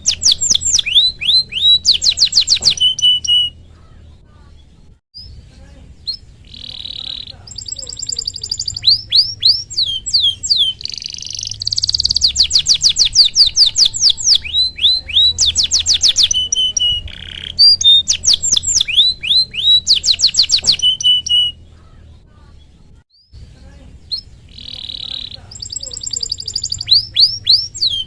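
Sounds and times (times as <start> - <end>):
canary singing: 0.0 - 28.0.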